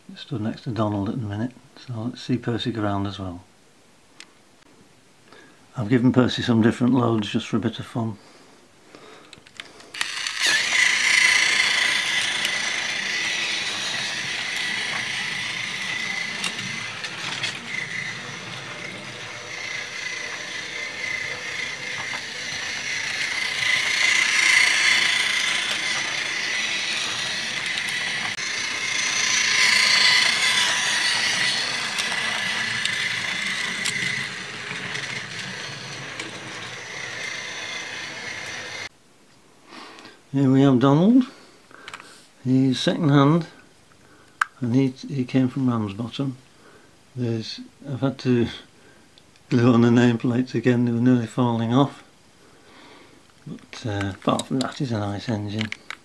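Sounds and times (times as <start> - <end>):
toy train motor whirring: 9.6 - 38.9, 53.5 - 56.0.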